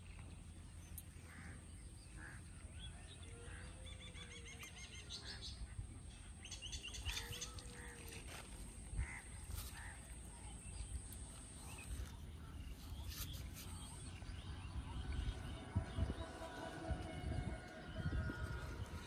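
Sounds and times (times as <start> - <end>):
low outdoor background: 0.0 - 19.0.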